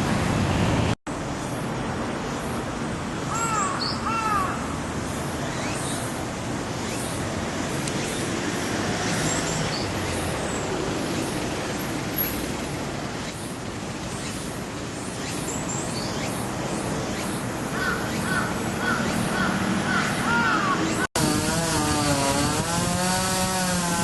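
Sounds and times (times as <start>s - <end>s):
traffic or machinery noise: 0.0s - 24.0s
crows cawing: 3.3s - 4.8s, 17.7s - 21.0s.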